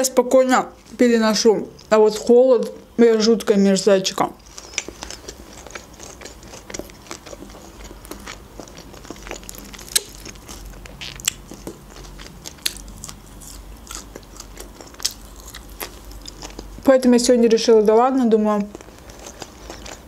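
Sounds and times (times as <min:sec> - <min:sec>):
person chewing: 0:04.4 - 0:16.8, 0:18.6 - 0:20.0.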